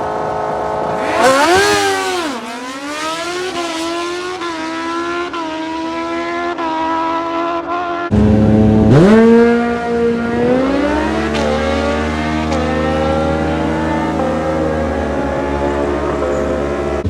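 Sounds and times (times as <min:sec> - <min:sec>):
mini bike engine revving: 0:00.8 - 0:17.0.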